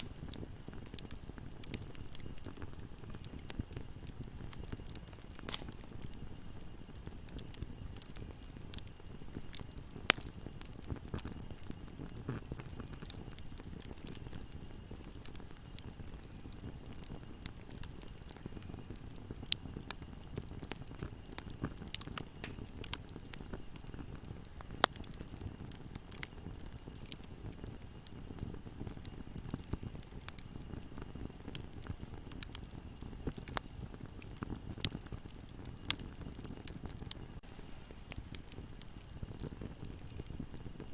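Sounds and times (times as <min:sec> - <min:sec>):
sharp fire pops: 0:00.0 - 0:40.9
wood fire crackling: 0:00.0 - 0:40.9.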